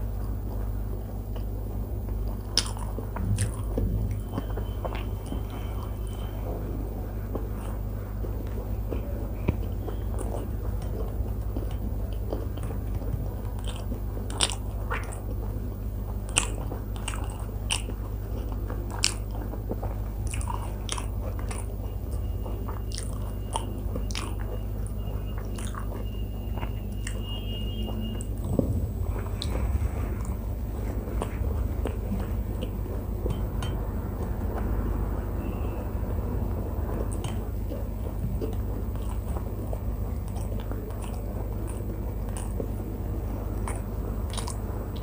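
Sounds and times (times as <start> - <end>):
steady low hum: 0.0 - 45.0
chewing and biting: 0.1 - 6.6, 7.2 - 45.0
wet lip smacks and mouth clicks: 25.4 - 26.0, 43.6 - 44.6.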